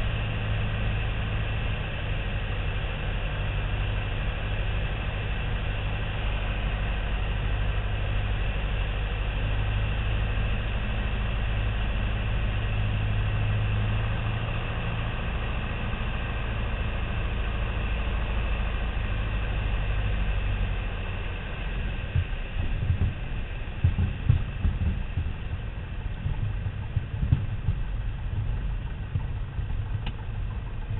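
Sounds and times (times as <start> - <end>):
aircraft engine and propeller drone: 0.0 - 30.9
uneven low thumps: 22.0 - 30.9.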